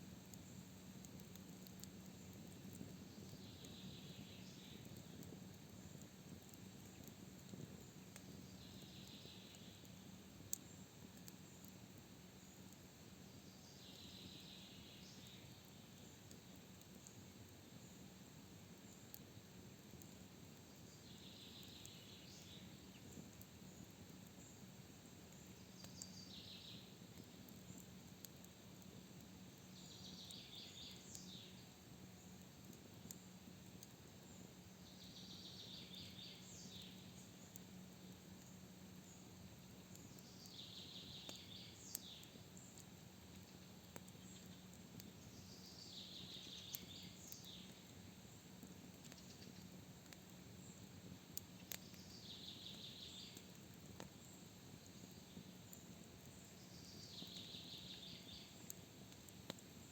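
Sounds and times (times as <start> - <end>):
campfire crackling and popping: 0.0 - 59.9
faint clicks: 0.3 - 3.8, 4.6 - 11.8, 25.3 - 26.2, 27.1 - 29.0, 32.4 - 34.0, 41.2 - 45.3, 48.6 - 56.4, 57.1 - 59.7
bird singing: 29.7 - 31.6, 34.8 - 37.0, 40.1 - 42.7, 45.2 - 47.8, 51.8 - 53.4, 56.3 - 58.6.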